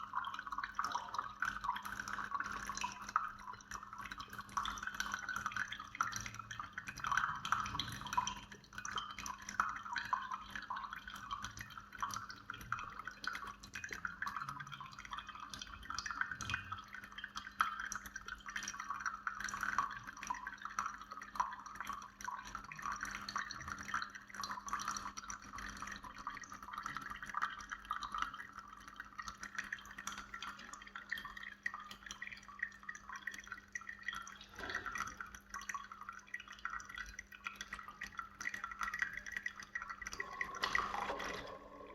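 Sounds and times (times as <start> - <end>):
coffee maker spitting and dripping: 0.0 - 41.9.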